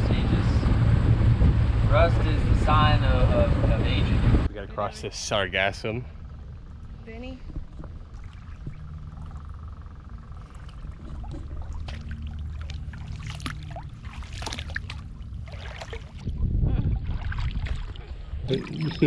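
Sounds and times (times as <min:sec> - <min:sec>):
rush of water or wind: 0:00.0 - 0:05.2, 0:11.0 - 0:19.0
boat engine hum: 0:00.0 - 0:19.0
water splashing against hull: 0:06.2 - 0:19.0.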